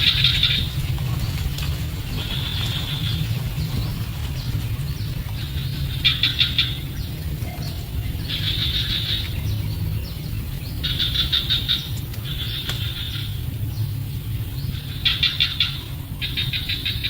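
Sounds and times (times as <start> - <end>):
steady low rumble: 0.0 - 17.0
bird chirping trilled notes: 2.4 - 15.8.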